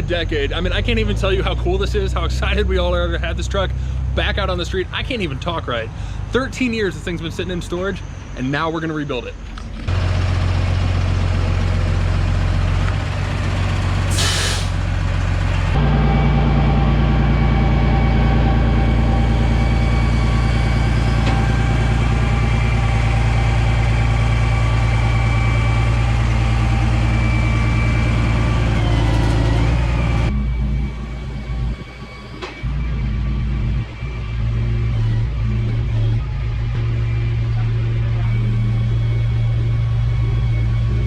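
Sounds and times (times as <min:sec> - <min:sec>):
heavy truck engine running: 0:00.0 - 0:41.0
air brake hiss: 0:14.1 - 0:14.8.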